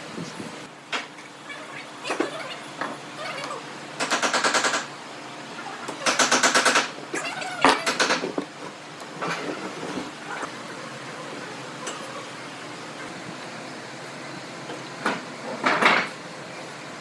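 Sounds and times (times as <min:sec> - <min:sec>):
power tool hammering: 0:04.0 - 0:04.9, 0:06.0 - 0:07.0.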